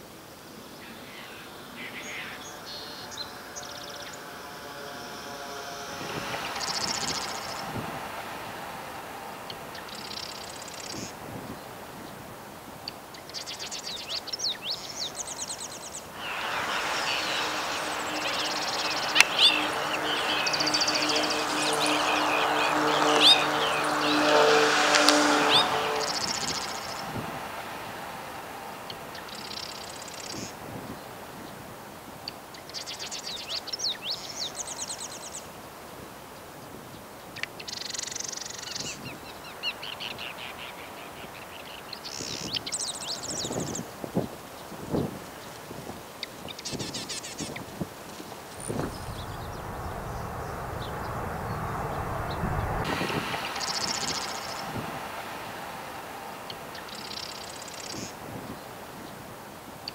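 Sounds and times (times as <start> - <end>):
steady rushing noise: 1.1 - 32.2, 47.8 - 59.9
small birds calling and singing: 13.2 - 27.0.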